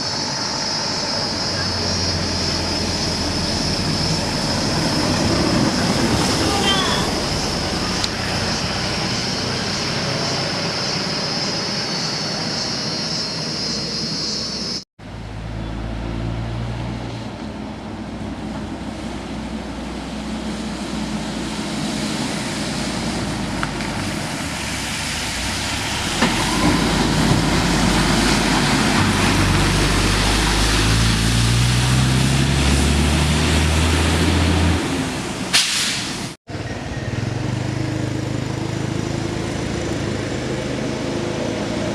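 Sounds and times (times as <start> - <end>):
heavy vehicle engines passing: 0.0 - 41.9
engine accelerating through gears: 25.6 - 35.3.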